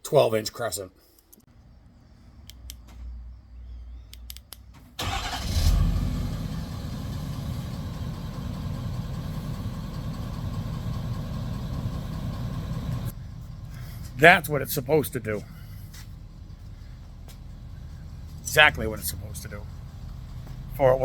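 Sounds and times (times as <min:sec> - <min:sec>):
truck engine starting and idling: 0:04.6 - 0:21.0.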